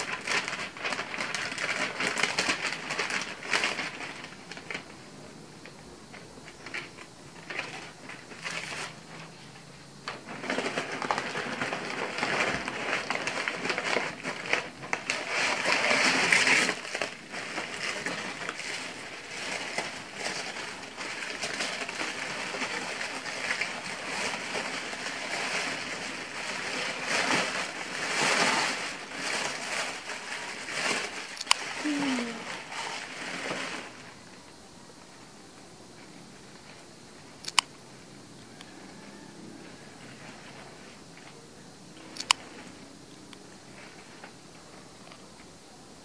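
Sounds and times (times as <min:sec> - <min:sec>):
paper rustling and crinkling: 0:00.0 - 0:05.0, 0:05.6 - 0:09.5, 0:10.1 - 0:34.5.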